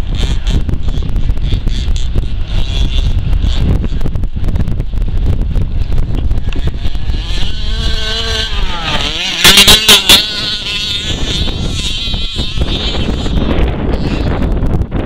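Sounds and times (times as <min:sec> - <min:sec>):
engine throttle blasts: 0:00.0 - 0:14.8
rc truck engine running: 0:00.0 - 0:15.0.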